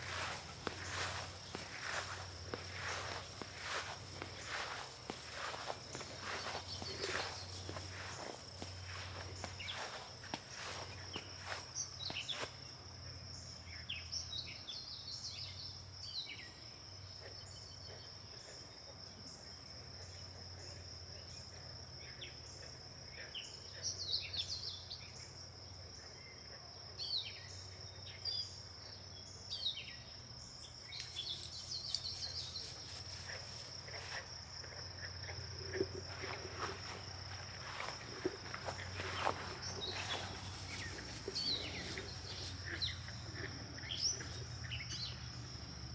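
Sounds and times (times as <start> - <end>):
high-pitched insect drone: 31.0 - 45.9.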